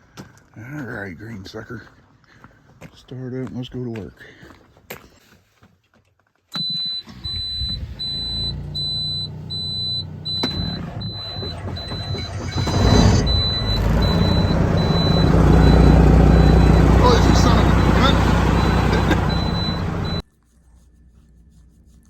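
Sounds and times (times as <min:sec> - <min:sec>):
truck engine rumbling: 0:07.1 - 0:20.2
warning chime beeping: 0:07.6 - 0:20.2.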